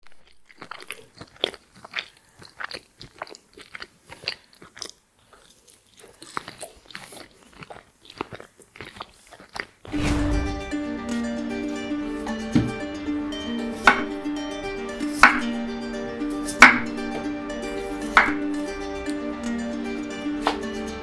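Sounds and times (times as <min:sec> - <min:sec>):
chewing crispy fries: 0:00.2 - 0:09.9
burst of noise: 0:09.9 - 0:10.9.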